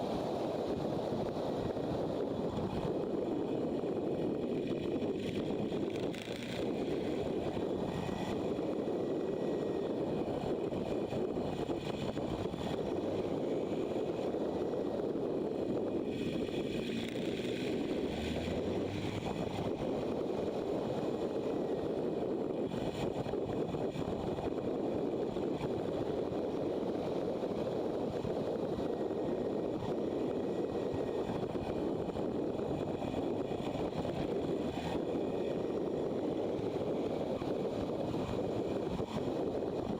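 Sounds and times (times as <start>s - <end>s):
road noise: 0.0s - 39.9s
wind rushing over microphone: 0.0s - 39.9s
motorcycle engine: 3.4s - 14.9s, 15.5s - 22.1s.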